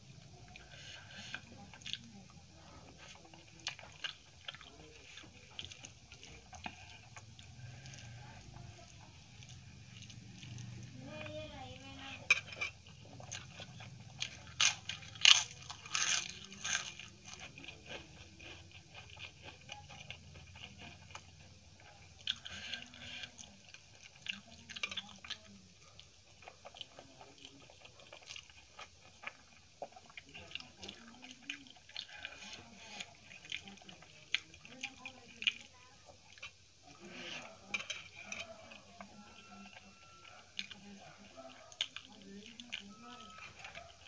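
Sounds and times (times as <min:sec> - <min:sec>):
soft wet chewing: 0:00.0 - 0:44.0
crisp crunching of papad: 0:14.3 - 0:18.1.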